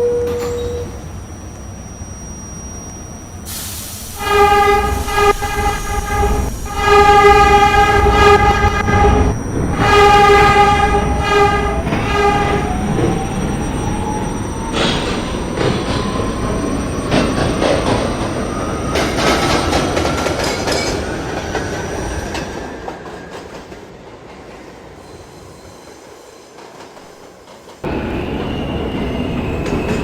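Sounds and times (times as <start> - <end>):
subway train horn blasts: 0.0 - 1.1, 3.5 - 13.8
rumble of moving train: 0.0 - 30.0.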